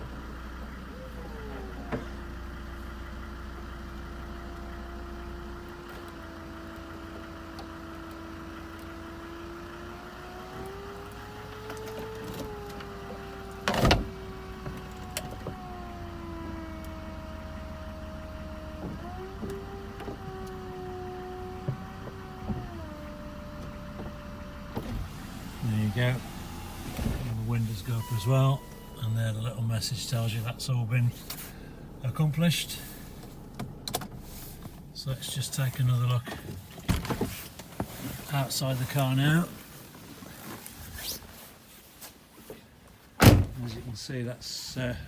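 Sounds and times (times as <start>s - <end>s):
motor whine of folding roof: 0.2s - 29.0s.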